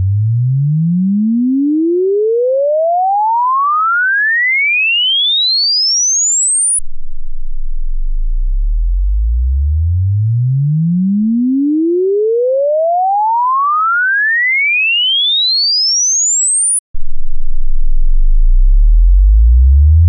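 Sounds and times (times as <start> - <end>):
rising sine tone sweep: 5.8 - 14.1, 15.8 - 20.0.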